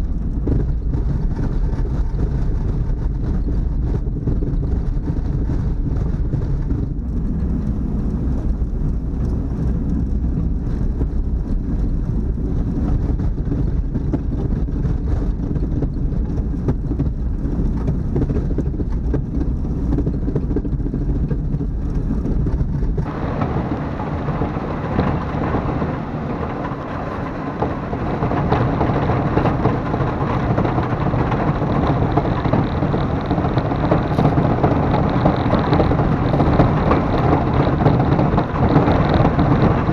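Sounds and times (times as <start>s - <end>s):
engine running with low rumble: 0.0s - 39.9s
harsh rushing noise: 22.6s - 39.9s.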